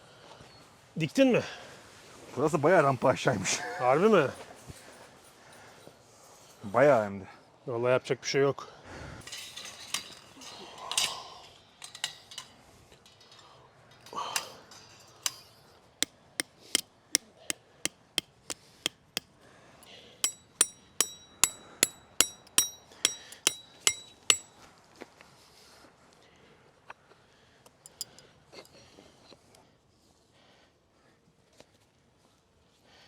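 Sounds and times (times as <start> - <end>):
hammer striking tent pegs: 20.2 - 24.5
metallic ringing strikes: 20.2 - 24.5.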